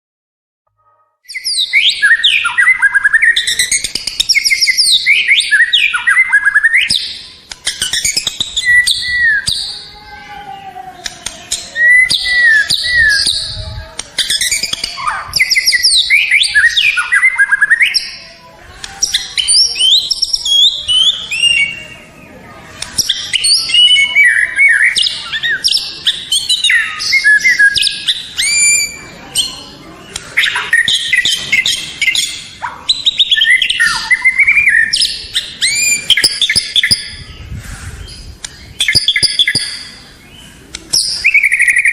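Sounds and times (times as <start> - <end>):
bird singing whistles and trills: 1.2 - 9.9, 11.0 - 18.2, 19.0 - 22.3, 22.9 - 29.7, 30.4 - 41.9.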